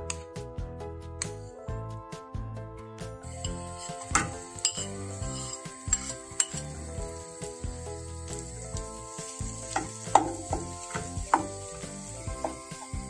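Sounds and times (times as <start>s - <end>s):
background music: 0.0s - 13.0s
mashed potato sizzling in a pan: 3.2s - 13.0s
utensil knocking and scraping pan: 3.3s - 13.0s.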